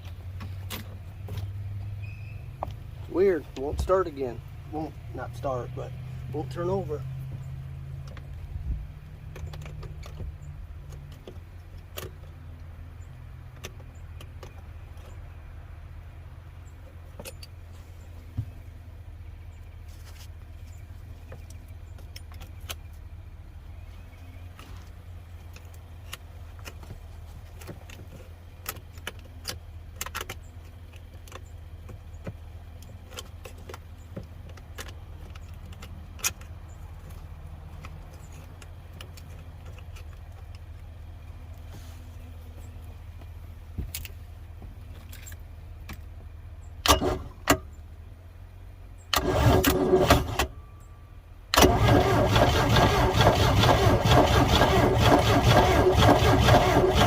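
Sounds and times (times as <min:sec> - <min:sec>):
boat engine starter cranking: 0:46.8 - 0:47.6, 0:49.1 - 0:50.5, 0:51.5 - 0:57.0.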